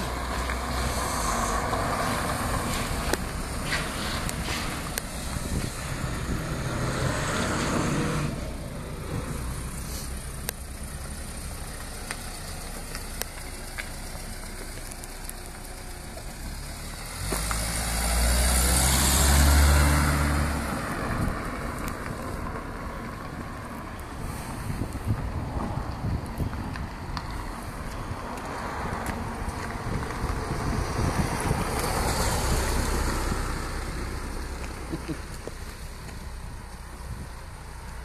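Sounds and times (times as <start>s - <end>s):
truck engine driving past: 16.3s - 21.4s.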